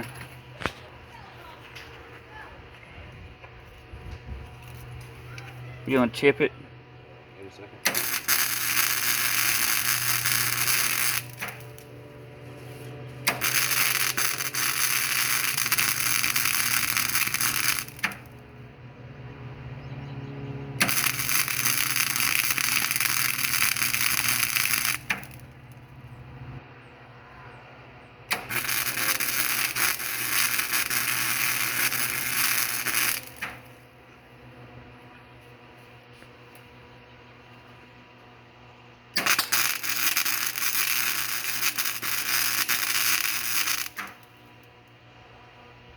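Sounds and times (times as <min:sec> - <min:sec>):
welder arc crackling: 0:00.0 - 0:00.8, 0:07.8 - 0:18.4, 0:20.8 - 0:25.8, 0:28.3 - 0:33.8, 0:39.1 - 0:44.4
steady low hum: 0:00.0 - 0:45.9.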